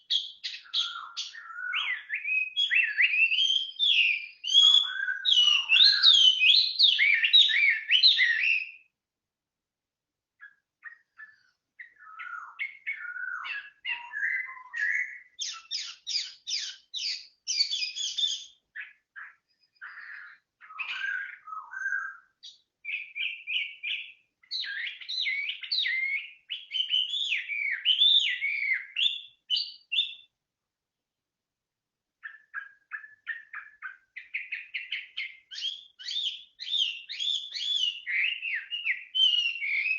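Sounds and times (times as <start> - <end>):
songbird singing: 0.0 - 30.5, 32.1 - 39.9.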